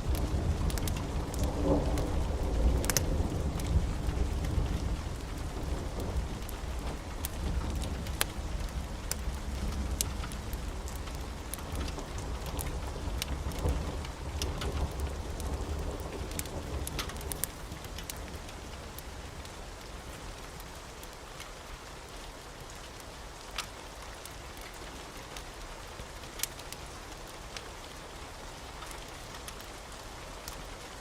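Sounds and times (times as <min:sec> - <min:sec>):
low rumble of thunder: 0:00.0 - 0:20.6
fireplace crackling and popping: 0:00.0 - 0:21.6, 0:26.2 - 0:27.8
steady rain: 0:00.0 - 0:31.0.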